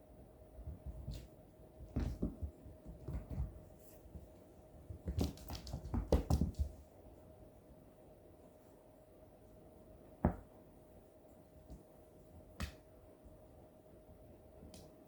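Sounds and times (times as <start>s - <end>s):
cats scuffling on floor: 0.6s - 7.0s.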